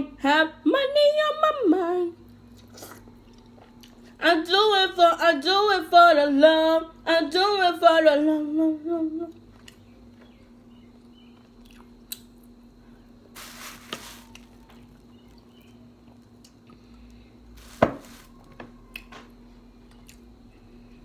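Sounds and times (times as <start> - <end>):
faint steady hum: 0.0 - 21.0
rustle: 13.4 - 14.6, 17.6 - 18.3.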